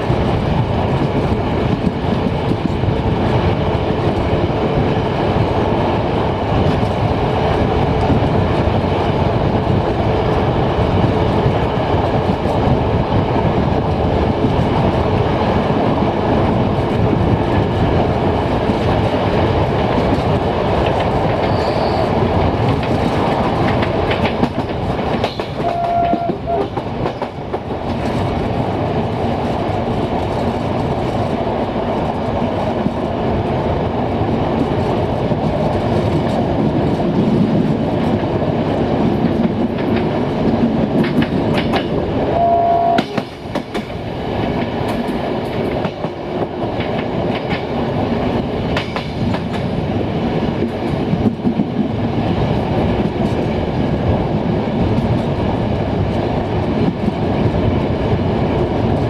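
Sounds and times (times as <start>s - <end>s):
train wheels clacking: 17.0s - 31.4s, 34.6s - 52.2s.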